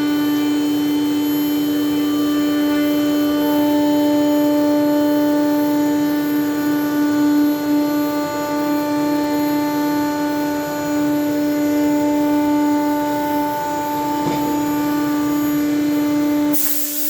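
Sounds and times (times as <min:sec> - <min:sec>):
router spindle whine: 0:00.0 - 0:17.0.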